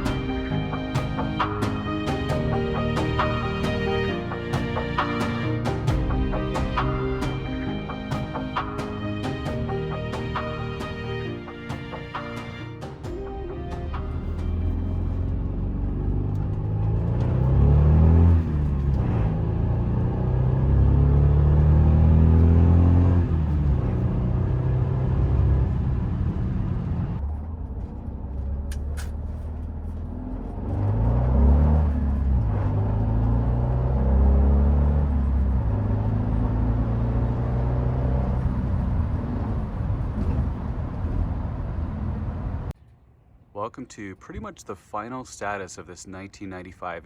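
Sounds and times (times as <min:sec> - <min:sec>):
car engine accelerating through gears: 0:13.4 - 0:42.7.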